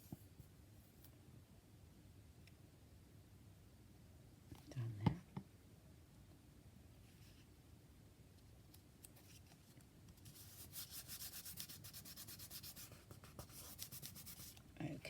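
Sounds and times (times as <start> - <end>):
rubbing strokes on paper: 10.2 - 14.6.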